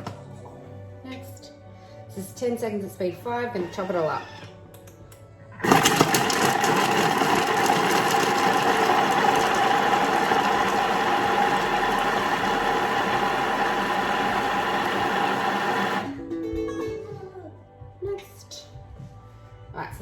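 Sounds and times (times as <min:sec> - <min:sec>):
food processor chopping vegetables: 0:05.6 - 0:16.1.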